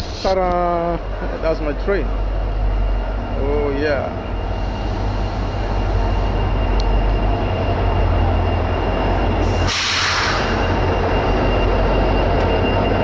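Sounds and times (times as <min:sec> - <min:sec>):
train rumble with high whine: 0:00.0 - 0:13.0
burst of hiss: 0:09.7 - 0:10.5.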